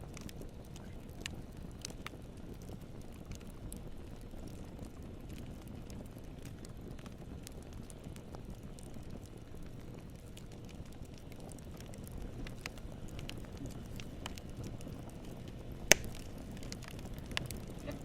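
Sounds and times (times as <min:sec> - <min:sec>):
campfire burning: 0:00.0 - 0:18.0
loud wood pop: 0:15.9 - 0:16.3.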